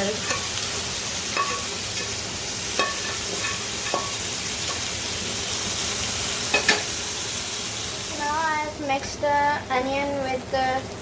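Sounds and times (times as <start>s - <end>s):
food sizzling in oil: 0.0s - 11.0s
spoon scraping a pan: 0.1s - 4.9s.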